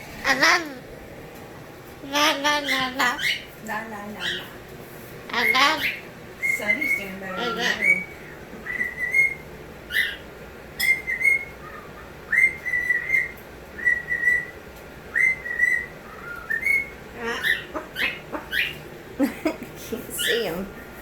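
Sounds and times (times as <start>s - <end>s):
harsh bird chirps: 2.0s - 3.6s, 4.2s - 4.6s, 5.3s - 19.0s
bird whistling: 5.4s - 18.9s.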